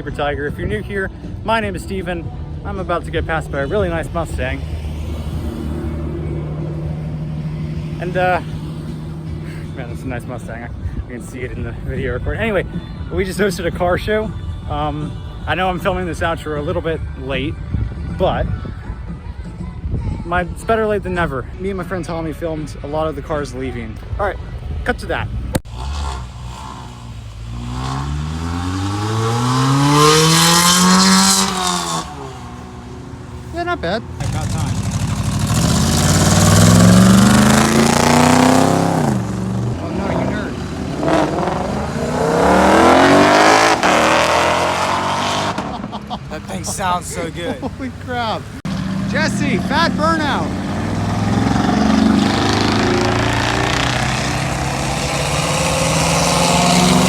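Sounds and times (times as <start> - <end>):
car engine accelerating past: 4.3 - 9.4, 25.7 - 33.4, 34.0 - 46.5, 48.6 - 57.0.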